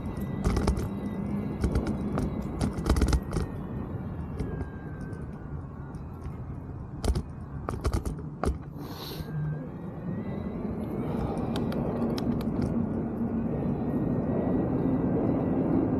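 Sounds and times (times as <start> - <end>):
bike clicks and rattling knocks: 0.0 - 3.6, 4.3 - 8.7
bike tyres rolling: 0.0 - 8.4.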